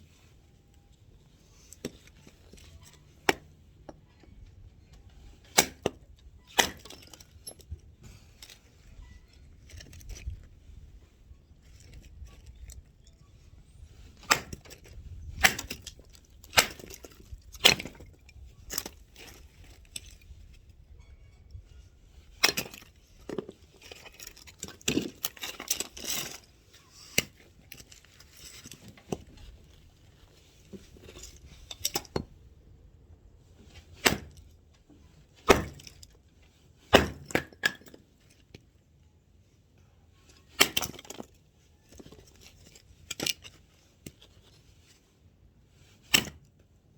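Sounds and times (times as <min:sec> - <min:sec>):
split wood clattering: 0:05.0 - 0:08.6, 0:14.0 - 0:20.6, 0:22.1 - 0:29.9, 0:33.8 - 0:34.5, 0:35.4 - 0:36.2, 0:36.9 - 0:38.2
axe chopping firewood: 0:05.4 - 0:07.0, 0:14.2 - 0:18.2, 0:33.9 - 0:34.4, 0:35.4 - 0:36.0, 0:36.9 - 0:37.9.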